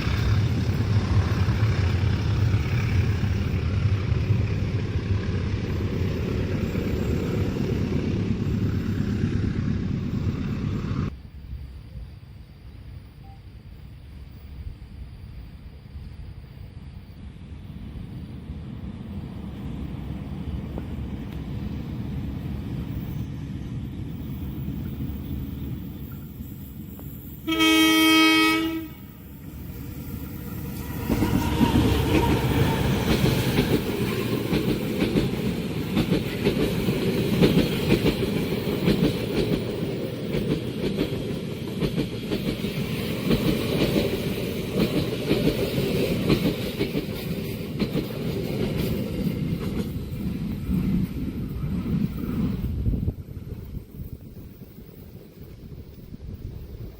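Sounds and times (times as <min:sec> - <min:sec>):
passenger train rumbling: 0:00.0 - 0:56.9
loud multi-tone train horn: 0:27.4 - 0:29.4, 0:30.8 - 0:33.3
wheels clacking over rail joints: 0:30.2 - 0:51.0.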